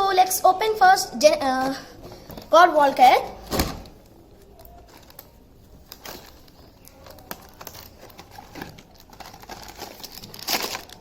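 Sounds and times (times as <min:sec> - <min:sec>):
packaging being opened: 0:04.4 - 0:11.0.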